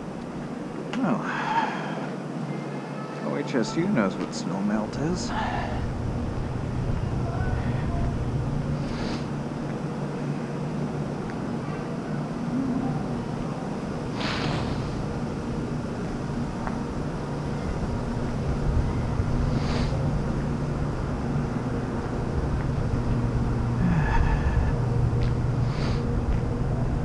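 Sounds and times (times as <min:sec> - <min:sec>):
vehicle engine humming: 0:00.0 - 0:27.0
short hisses: 0:08.8 - 0:09.3, 0:14.2 - 0:15.0.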